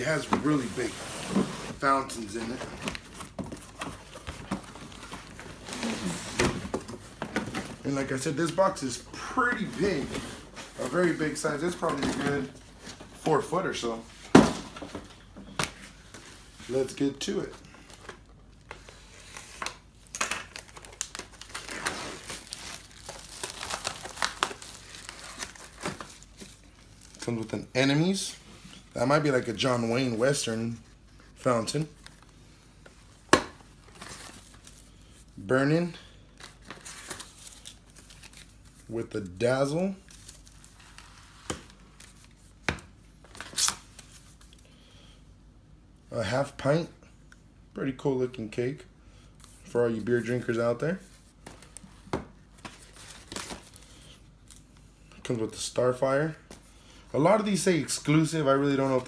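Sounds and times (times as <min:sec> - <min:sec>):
packaging crinkling and tearing: 0:19.4 - 0:27.4.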